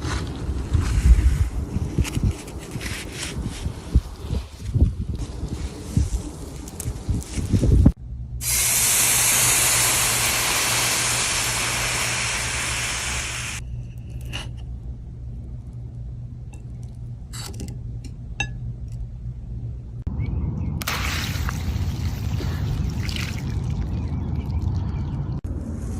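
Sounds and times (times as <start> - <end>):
low hum: 0.0 - 25.9
spraying hiss: 8.4 - 13.6.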